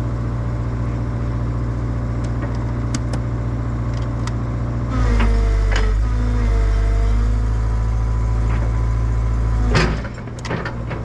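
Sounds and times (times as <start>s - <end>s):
excavator diesel engine running: 0.0s - 11.0s
hydraulic whine: 3.9s - 11.0s.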